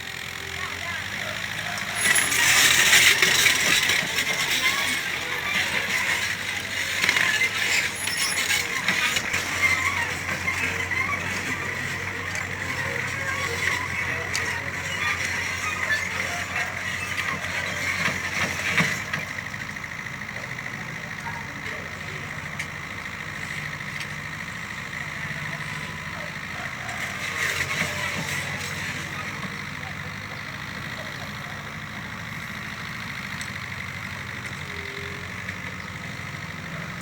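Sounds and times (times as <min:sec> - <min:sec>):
excavator engine running: 0:00.0 - 0:37.0
metallic clicking and squeaking: 0:01.1 - 0:20.0.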